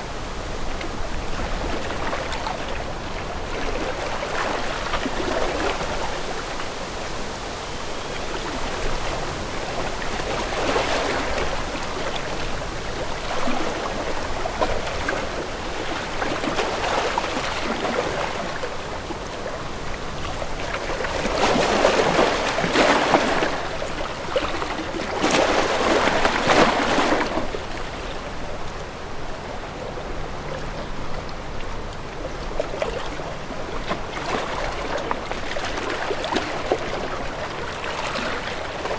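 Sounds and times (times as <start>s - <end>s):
water lapping against boat hull: 8.1s - 38.9s.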